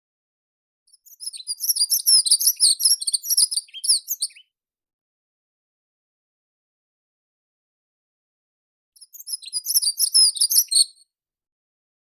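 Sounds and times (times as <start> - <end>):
songbird chirping: 0.9 - 4.5, 9.0 - 10.9.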